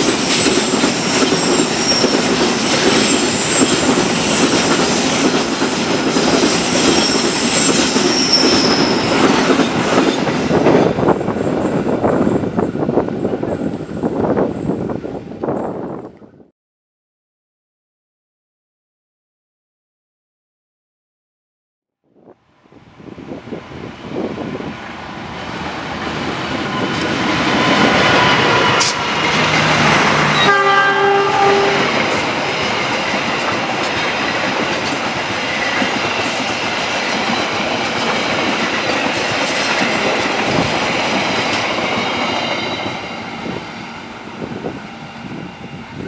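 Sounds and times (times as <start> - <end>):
train passing at speed: 0.0 - 16.5, 22.3 - 46.0
train horn: 27.6 - 32.3.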